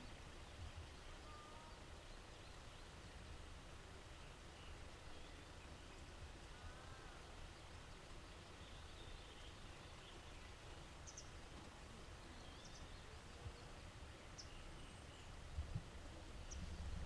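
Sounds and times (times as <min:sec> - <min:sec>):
faint high bird chirps: 0:01.1 - 0:01.9.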